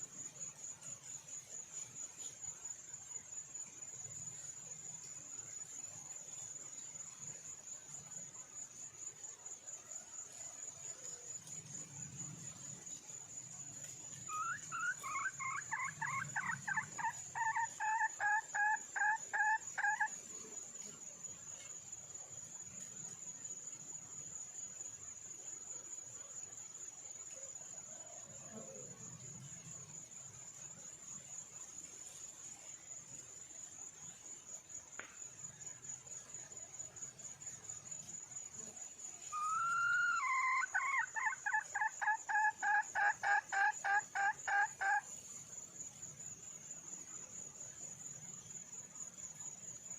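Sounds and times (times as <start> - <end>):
high trill of insects: 0.0 - 49.9.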